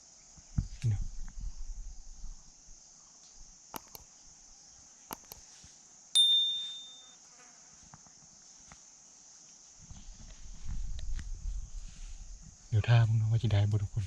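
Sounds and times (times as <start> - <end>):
insect chirring: 0.0 - 13.8
faint clicks: 3.7 - 4.1, 5.1 - 5.4
sharp metallic ding: 6.2 - 7.2.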